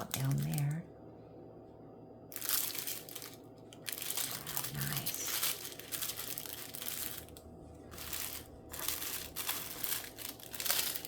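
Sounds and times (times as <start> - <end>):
plastic bags crinkling: 0.0 - 0.8, 2.3 - 11.0.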